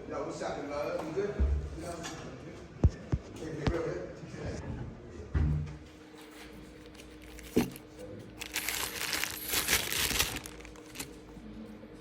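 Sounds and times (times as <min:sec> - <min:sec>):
crinkling rustling noise: 0:06.3 - 0:11.2.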